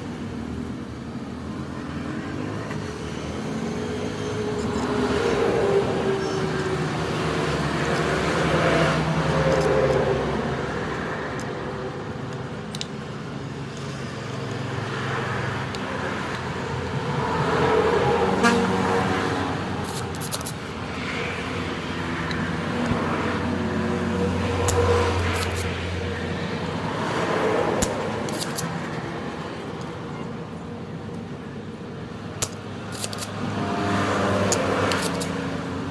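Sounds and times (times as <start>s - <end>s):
vehicles passing: 0.0s - 35.9s
sharp clicks: 27.8s - 29.0s, 32.4s - 33.4s, 34.5s - 35.4s.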